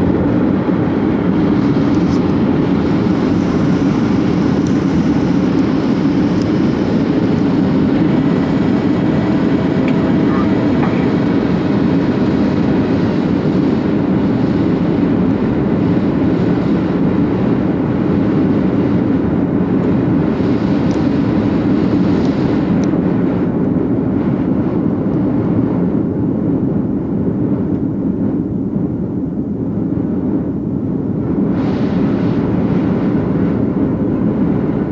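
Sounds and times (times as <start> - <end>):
airliner cabin engine noise: 0.0 - 34.9.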